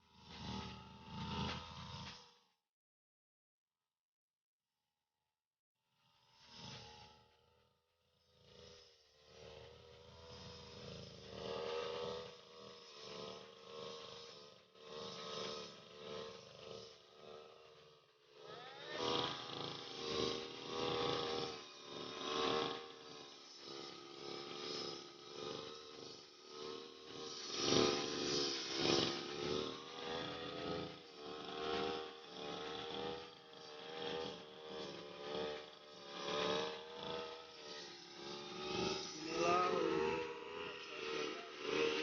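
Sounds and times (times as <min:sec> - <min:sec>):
brush cutter engine revving: 0:08.4 - 0:42.0.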